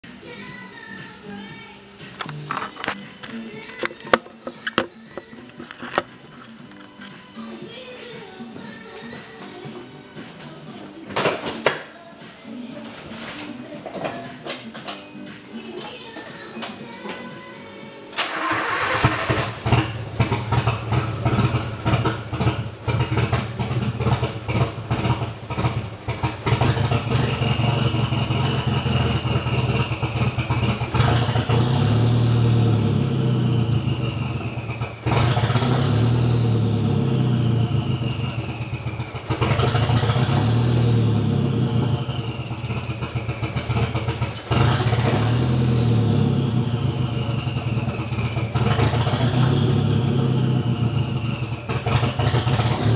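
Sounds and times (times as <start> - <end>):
misfiring car engine: 18.2 - 52.9.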